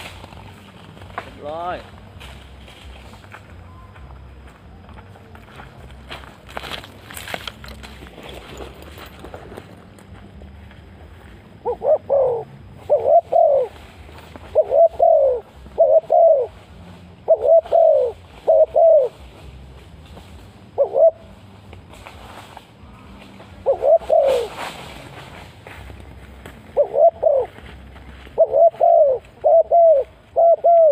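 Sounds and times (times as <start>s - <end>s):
dove cooing: 11.6s - 19.4s, 20.7s - 21.4s, 22.8s - 24.9s, 26.6s - 30.9s.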